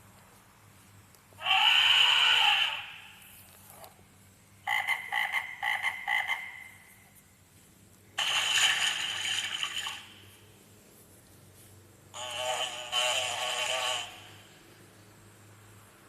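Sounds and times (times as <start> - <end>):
recorded frog croaking: 4.6 - 6.8.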